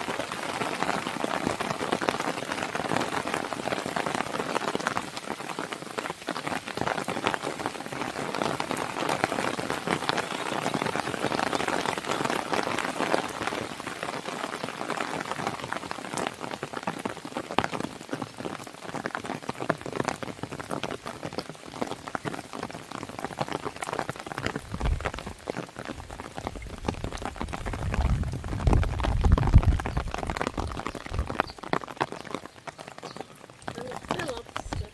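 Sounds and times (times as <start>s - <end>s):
rain pattering on a window: 0.0s - 34.9s
wood fire crackling: 22.0s - 34.9s.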